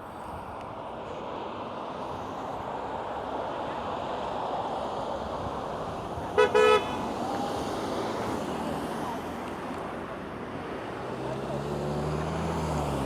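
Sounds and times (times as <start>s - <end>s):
traffic noise: 0.0s - 13.0s
car horn honking: 6.4s - 7.1s.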